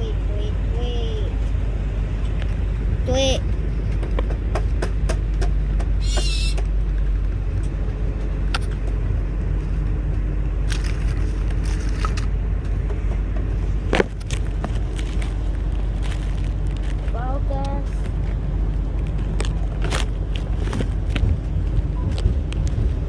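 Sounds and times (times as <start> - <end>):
steady low rumble: 0.0 - 23.0
bird chirp: 6.0 - 6.6.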